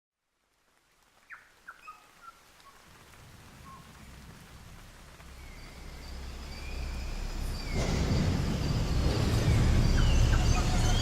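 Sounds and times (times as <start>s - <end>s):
birds chirping: 1.2s - 11.0s
low rumble: 3.2s - 11.0s.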